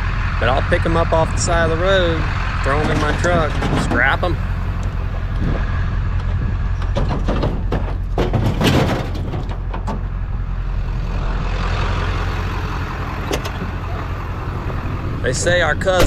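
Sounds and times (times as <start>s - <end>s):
truck engine running: 0.0s - 16.0s
knocks and rattles: 2.6s - 10.2s.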